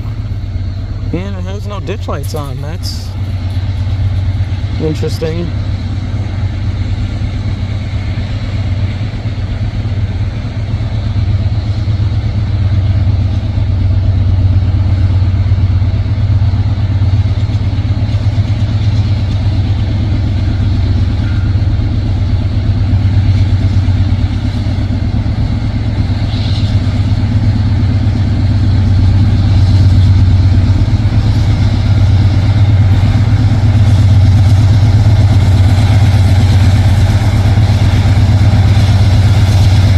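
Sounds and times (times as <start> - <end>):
diesel locomotive engine drone: 0.0 - 39.9.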